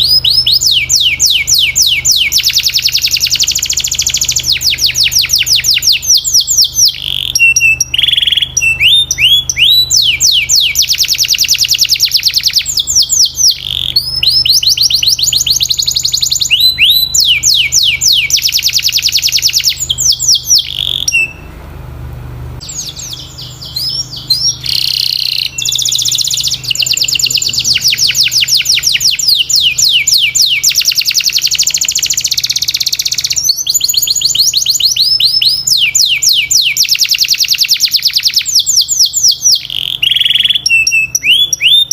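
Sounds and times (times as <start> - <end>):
canary singing trills: 0.0 - 21.6, 22.6 - 41.9.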